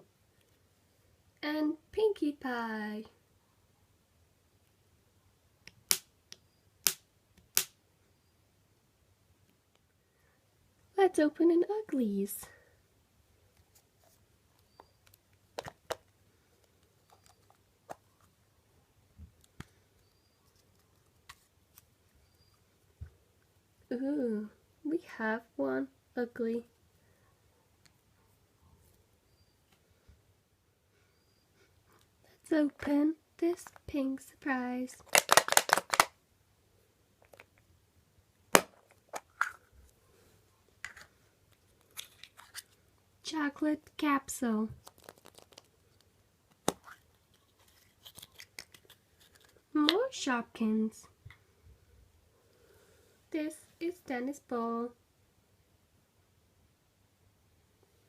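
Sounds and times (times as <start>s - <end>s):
plastic egg clicks and snap: 5.6s - 7.8s, 15.0s - 16.1s, 35.0s - 36.1s, 38.5s - 39.6s, 44.8s - 45.7s, 46.5s - 47.0s, 48.0s - 49.5s
toy package clicks and crinkles: 35.0s - 36.2s, 41.8s - 42.8s, 44.8s - 49.6s.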